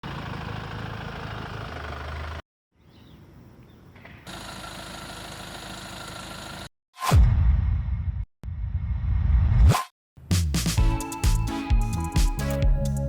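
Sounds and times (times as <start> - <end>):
vehicle engine running: 0.0 - 2.4, 4.3 - 6.7.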